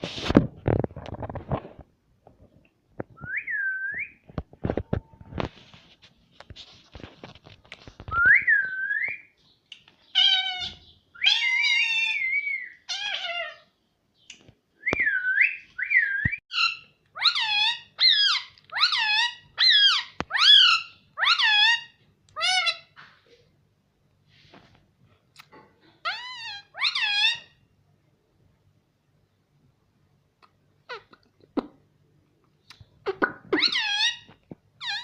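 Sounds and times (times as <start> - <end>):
parakeet calling and whistling: 8.2 - 13.6, 15.0 - 23.0, 26.0 - 27.6, 33.0 - 35.0.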